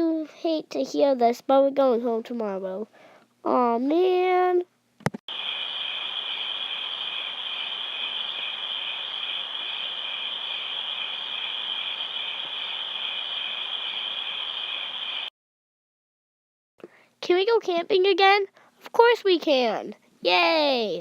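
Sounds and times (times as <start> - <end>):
crickets chirping: 5.3 - 15.3.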